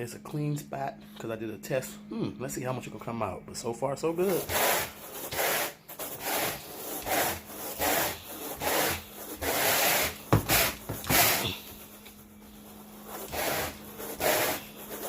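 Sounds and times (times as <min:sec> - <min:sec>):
brush scrubbing carpet: 0:04.2 - 0:15.0.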